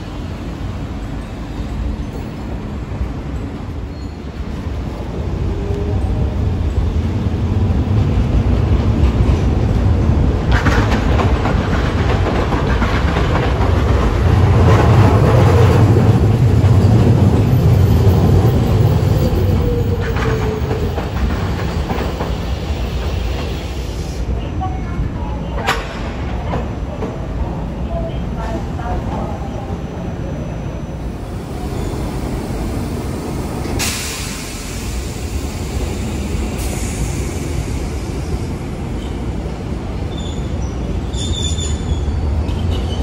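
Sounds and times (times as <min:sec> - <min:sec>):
tram wheel and motor rumble: 0:00.0 - 0:43.0
wheels clacking over rail joints: 0:08.6 - 0:23.6.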